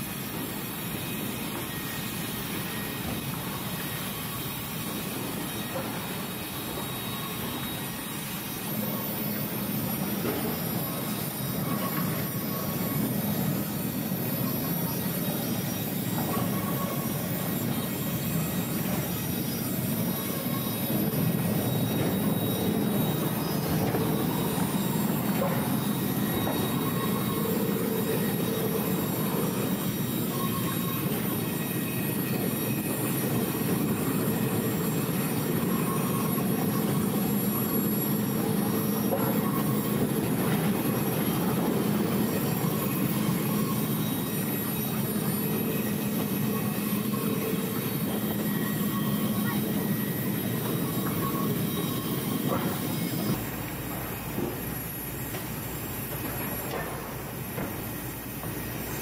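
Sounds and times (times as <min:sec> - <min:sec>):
faint mechanical tones: 0:00.0 - 0:59.0
heavy machinery running: 0:00.0 - 0:59.0.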